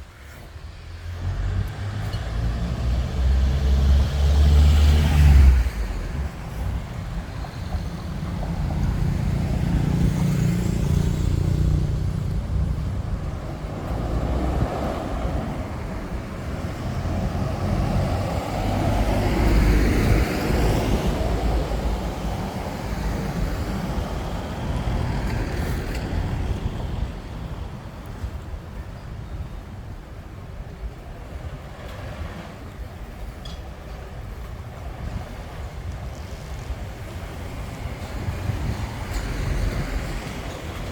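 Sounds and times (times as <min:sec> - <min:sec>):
road traffic rumbling: 0:00.0 - 0:40.9
vehicle passing close: 0:01.0 - 0:06.8.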